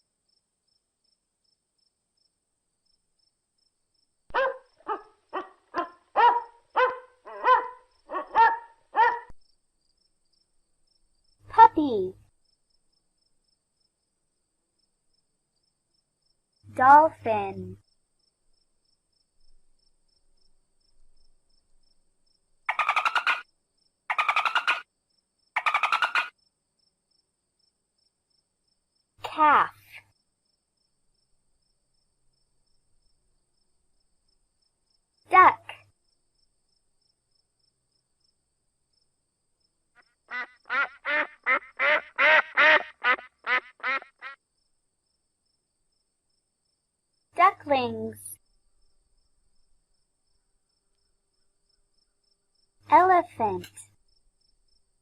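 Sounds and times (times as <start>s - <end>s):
dolphin calling in rapid pulses: 22.7s - 23.4s, 24.1s - 24.8s, 25.6s - 26.3s
duck quacking: 24.1s - 24.8s, 25.6s - 26.3s, 40.3s - 44.4s.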